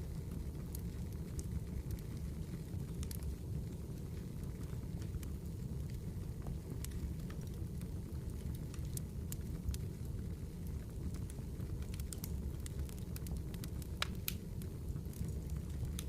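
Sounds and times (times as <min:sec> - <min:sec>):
campfire crackling: 0:00.0 - 0:16.0
low fire rumble: 0:00.0 - 0:16.0
sharp pops of fire: 0:11.2 - 0:16.0.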